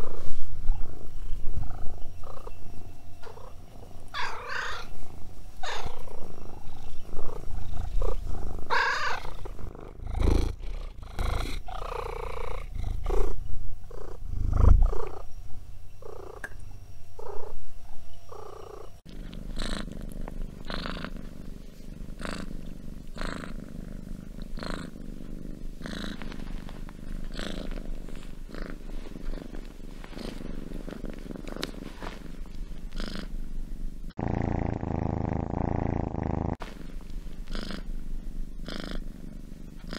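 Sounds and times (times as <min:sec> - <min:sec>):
cats purring: 0:00.0 - 0:16.6, 0:17.2 - 0:17.6, 0:18.3 - 0:39.9.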